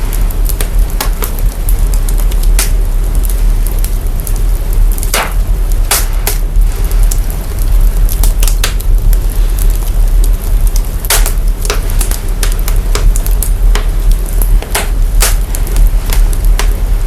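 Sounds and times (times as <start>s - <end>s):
deep sub-bass rumble: 0.0s - 17.0s
fire crackling pops: 0.0s - 17.0s.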